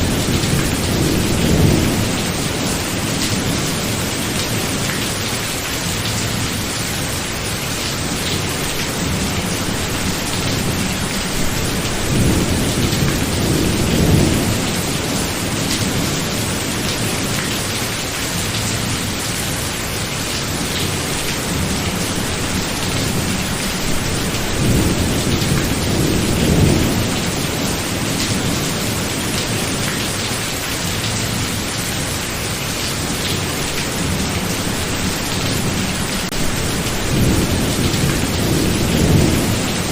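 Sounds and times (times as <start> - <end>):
thunder rumbling: 0.0 - 5.0, 8.1 - 17.4, 20.5 - 29.9, 33.1 - 39.9
rain falling: 0.0 - 39.9.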